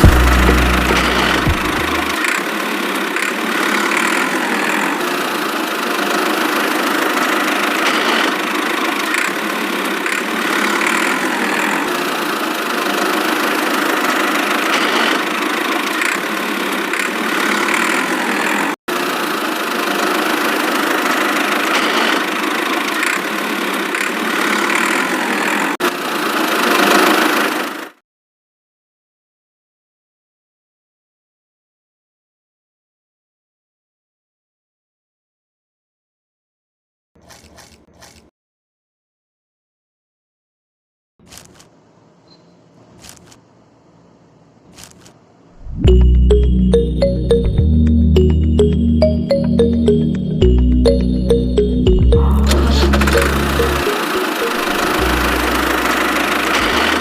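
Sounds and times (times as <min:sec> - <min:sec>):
engine running: 0:00.0 - 0:28.0, 0:45.6 - 0:57.0.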